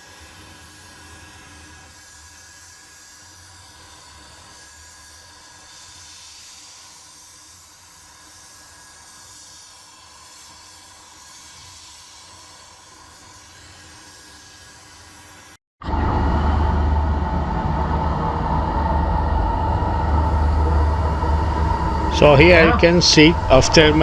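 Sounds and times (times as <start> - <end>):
faint low hum: 20.3 - 24.0
steady hiss: 20.3 - 24.0.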